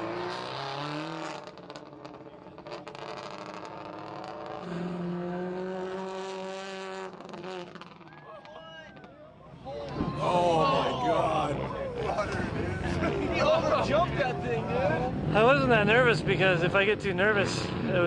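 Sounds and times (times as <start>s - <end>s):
rally car engine running hard: 0.0s - 8.1s.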